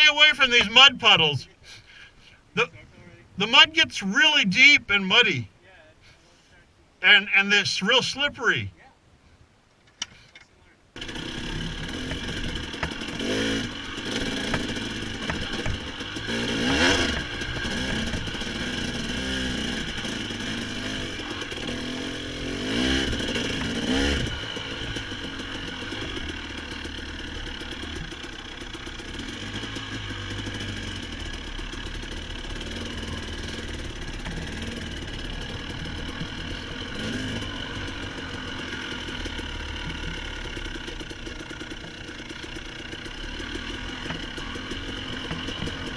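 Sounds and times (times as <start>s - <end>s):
dirt bike engine revving: 0.0s - 1.4s, 11.0s - 45.9s.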